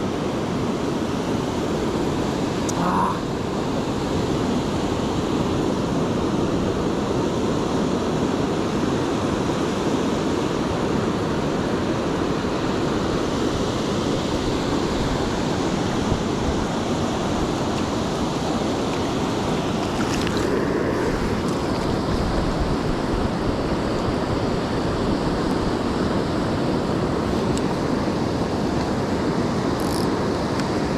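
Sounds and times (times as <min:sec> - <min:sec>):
sea surf rushing: 0:00.0 - 0:30.9
wind on microphone: 0:12.9 - 0:26.2.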